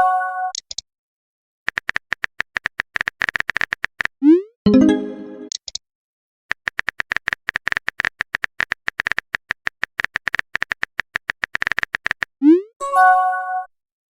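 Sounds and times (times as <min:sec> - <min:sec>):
phone keyboard typing clicks: 0:01.7 - 0:04.1, 0:06.5 - 0:12.3.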